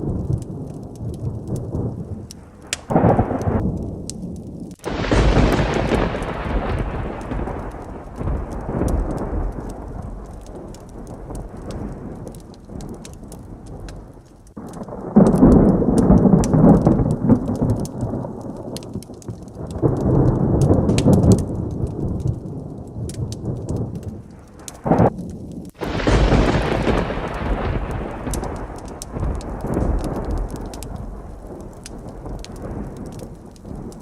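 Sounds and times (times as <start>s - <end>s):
heavy rain: 0.0s - 34.0s
thunder crack: 0.0s - 34.0s
thunder rumbling: 0.0s - 34.0s.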